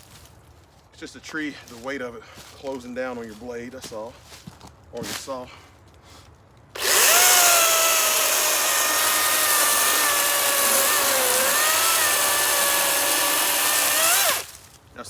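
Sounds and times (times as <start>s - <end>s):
electric chainsaw cutting log: 6.8s - 14.6s.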